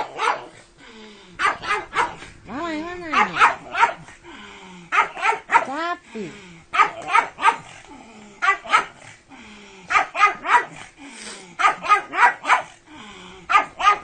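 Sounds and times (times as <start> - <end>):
dog barking: 0.0 - 0.6, 1.4 - 2.2, 3.1 - 4.1, 4.9 - 5.8, 6.7 - 7.8, 8.4 - 9.0, 9.9 - 10.9, 11.6 - 12.8, 13.5 - 14.0.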